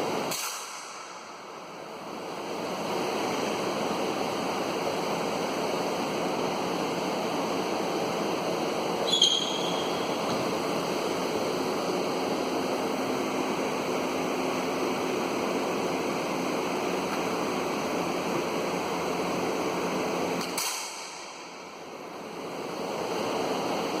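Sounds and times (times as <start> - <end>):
sharp click: 20.4 - 21.1.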